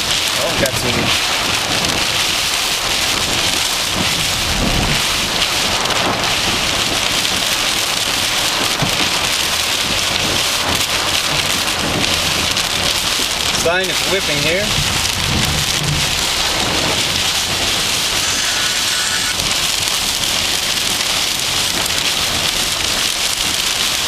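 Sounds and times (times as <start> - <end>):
heavy rain pouring: 0.0 - 24.0
strong wind rumbling: 0.8 - 13.6, 14.7 - 21.0.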